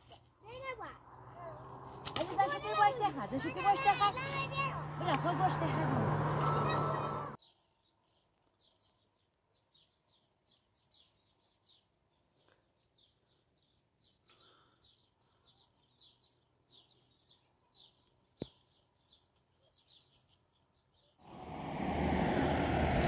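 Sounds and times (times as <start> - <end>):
songbird chirping: 0.4 - 21.9.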